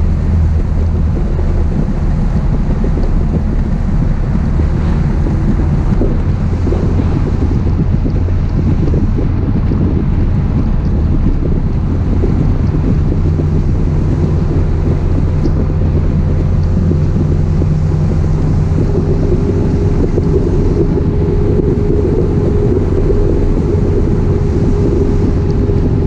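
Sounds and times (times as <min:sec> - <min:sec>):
car engine and exhaust cruising: 0:00.0 - 0:26.0
wind buffeting microphone: 0:00.0 - 0:26.0.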